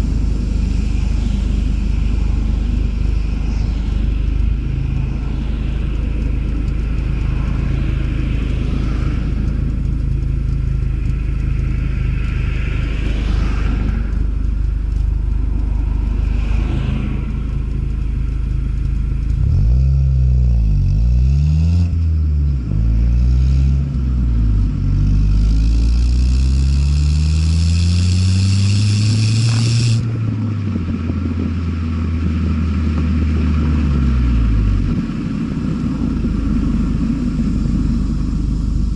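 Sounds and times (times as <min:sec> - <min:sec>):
car engine revving: 0:03.9 - 0:38.9
hiss: 0:25.4 - 0:30.1.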